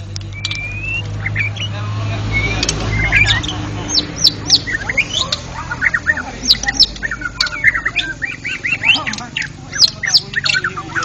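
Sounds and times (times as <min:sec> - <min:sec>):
songbird singing whistles: 0:00.2 - 0:11.0.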